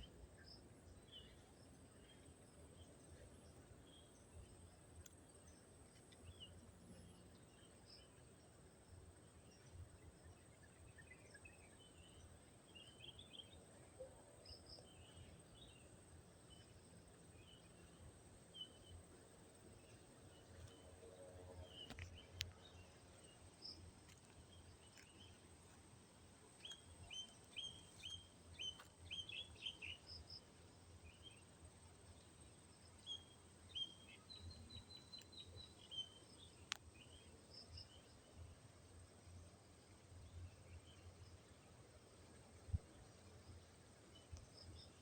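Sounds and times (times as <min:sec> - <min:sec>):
small birds chirping: 0:26.6 - 0:31.5.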